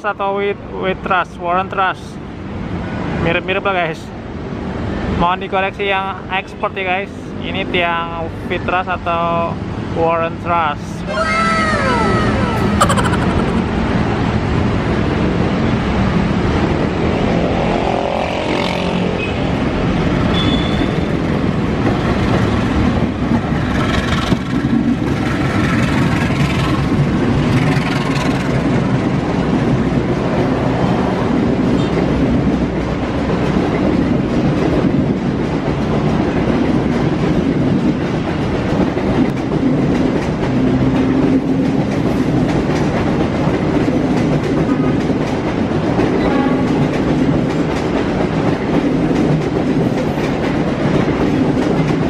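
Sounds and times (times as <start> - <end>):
train running on rails: 0.0 - 52.0.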